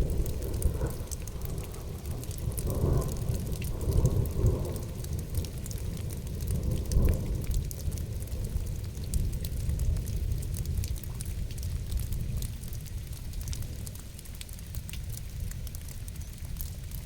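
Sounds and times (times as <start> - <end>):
rolling thunder: 0.0 - 5.3
steady rain: 0.0 - 17.0.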